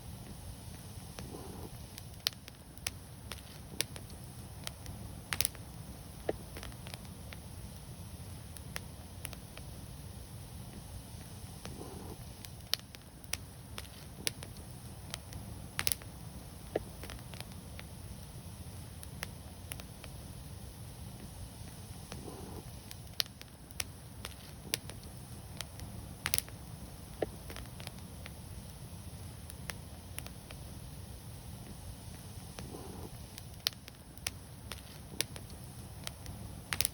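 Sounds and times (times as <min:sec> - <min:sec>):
wood fire crackling and popping: 0:00.0 - 0:36.9.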